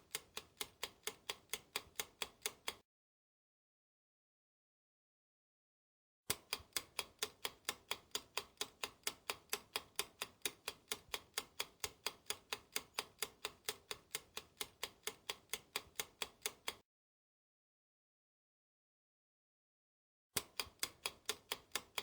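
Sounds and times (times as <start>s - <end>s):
clock ticking fast: 0.0s - 2.8s, 6.3s - 16.8s, 20.4s - 22.0s.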